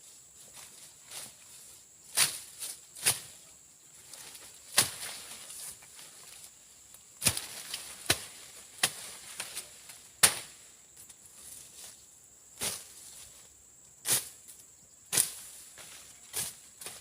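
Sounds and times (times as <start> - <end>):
machete slashing through brush: 4.7 - 5.3, 7.2 - 9.6.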